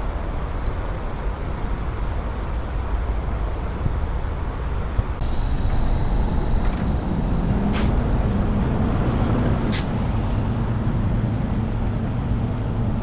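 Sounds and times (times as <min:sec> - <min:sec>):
air brake hisses: 0:05.2 - 0:10.1
diesel truck engine running: 0:05.2 - 0:13.0.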